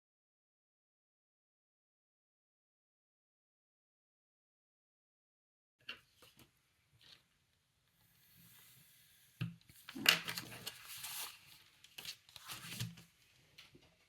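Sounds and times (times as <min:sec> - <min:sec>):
paper rustling and crinkling: 0:09.8 - 0:13.9.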